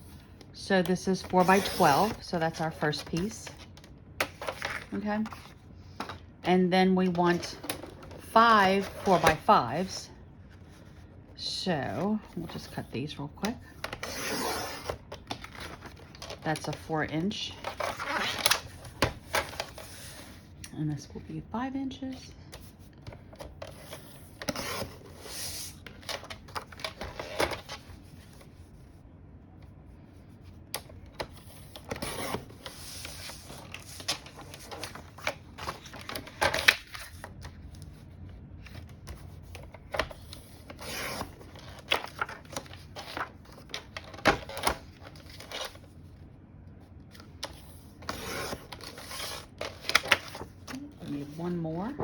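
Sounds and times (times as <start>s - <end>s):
paper rustling: 30.8s - 45.9s.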